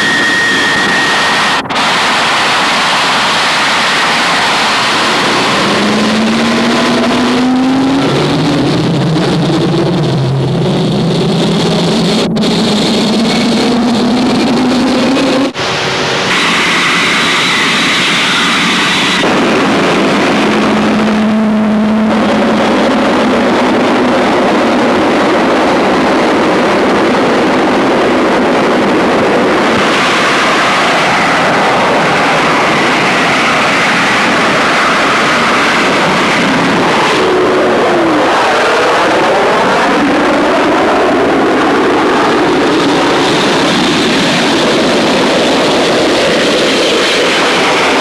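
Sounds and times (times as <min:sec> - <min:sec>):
jet aircraft roar: 0:00.0 - 0:48.0.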